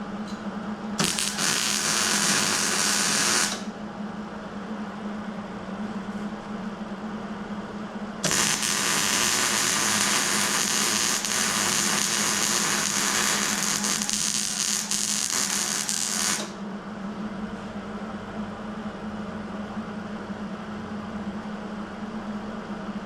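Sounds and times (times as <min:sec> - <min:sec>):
steady low hum: 0:00.0 - 0:23.0
plasma cutter hissing: 0:01.0 - 0:03.6, 0:08.2 - 0:16.6.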